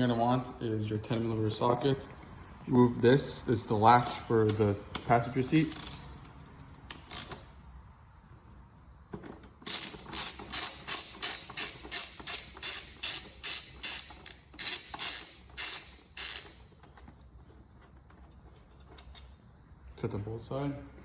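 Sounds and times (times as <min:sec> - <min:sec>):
ratchet wrench clicking: 0:05.4 - 0:07.6, 0:09.6 - 0:16.7.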